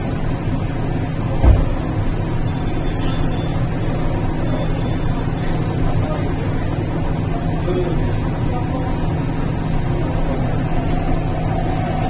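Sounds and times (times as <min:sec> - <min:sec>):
train wheels rumbling on rail: 0:00.0 - 0:12.0
low thump: 0:01.4 - 0:01.9.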